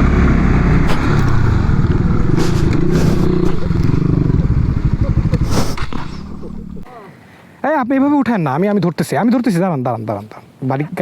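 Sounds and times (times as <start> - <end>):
motorcycle engine revving: 0.0 - 6.9
rush of noise: 0.2 - 6.9.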